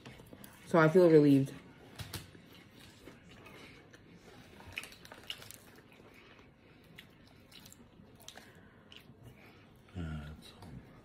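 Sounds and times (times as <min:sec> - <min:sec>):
close-mouthed chewing: 0:02.3 - 0:11.0.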